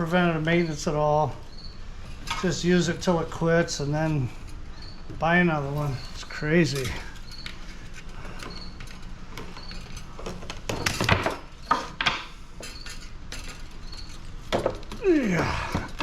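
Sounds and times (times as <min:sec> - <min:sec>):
metal parts clinking and knocking: 0:06.0 - 0:15.0.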